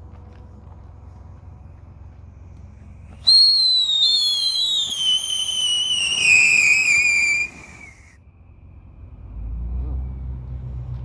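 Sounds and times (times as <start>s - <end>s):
whistling firework: 3.2s - 8.2s.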